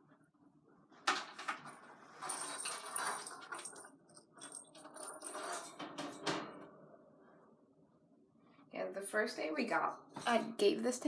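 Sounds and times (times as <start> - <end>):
small toys clattering and jingling: 1.1 - 6.0.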